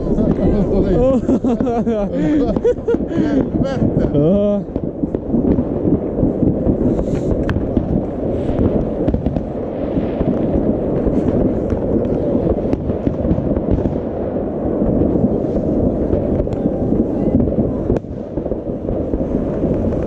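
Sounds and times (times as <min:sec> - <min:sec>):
fireworks barrage: 0:00.0 - 0:20.0.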